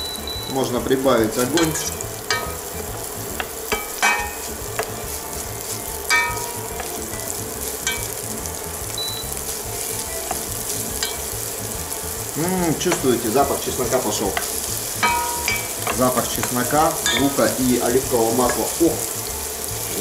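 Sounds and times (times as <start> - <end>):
onion and garlic sizzling in oil: 0.0 - 20.0
wooden spatula knocking on pan: 1.6 - 5.2, 9.7 - 13.3, 14.1 - 17.6.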